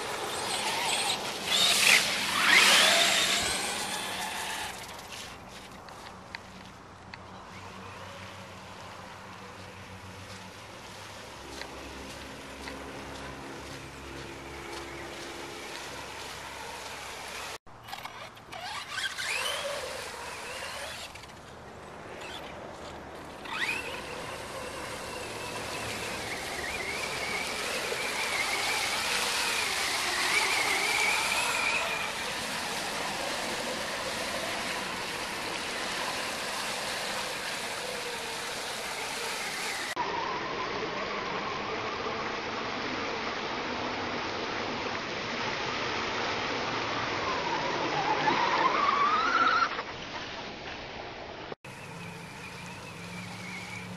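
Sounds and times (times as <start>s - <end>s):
electric motor whining: 0.0s - 5.4s, 12.0s - 21.4s, 22.1s - 40.0s, 51.7s - 53.9s.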